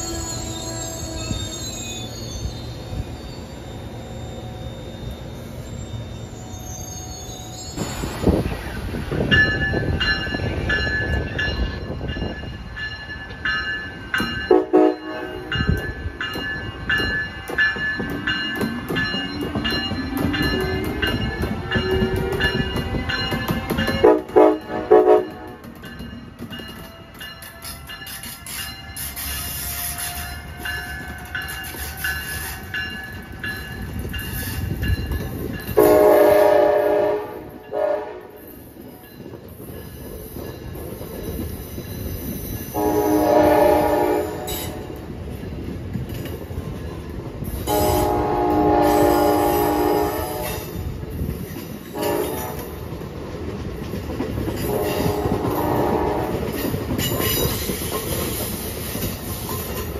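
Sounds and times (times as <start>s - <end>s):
train wheels rumbling on rails: 0.0s - 59.9s
train horn blasts: 14.5s - 15.6s, 21.9s - 25.7s, 35.8s - 38.5s, 42.8s - 44.9s, 47.7s - 50.8s, 51.9s - 52.8s, 54.6s - 56.6s.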